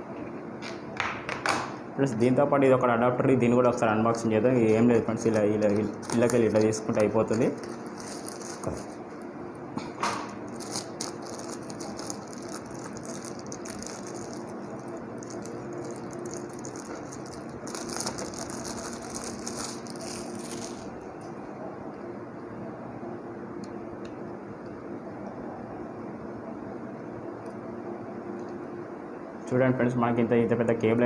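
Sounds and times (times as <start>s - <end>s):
plastic packaging rattling and crinkling: 4.8s - 9.0s, 10.5s - 20.9s.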